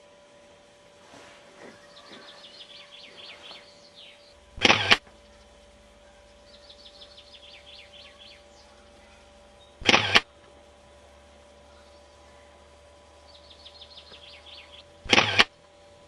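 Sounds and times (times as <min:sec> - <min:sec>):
birds chirping faintly: 0:00.0 - 0:16.0
faint steady hum: 0:00.0 - 0:16.0
loud burst of camcorder noise: 0:01.6 - 0:10.5, 0:13.3 - 0:15.6.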